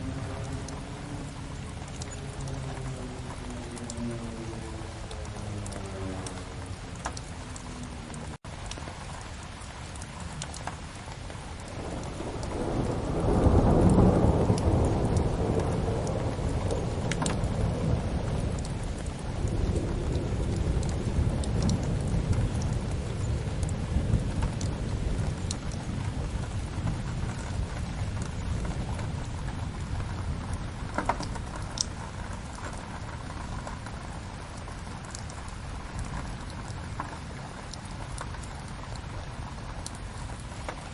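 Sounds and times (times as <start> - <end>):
steady rain: 0.0 - 40.9
wood fire crackling: 1.6 - 40.9
thunder rolling: 11.7 - 37.1.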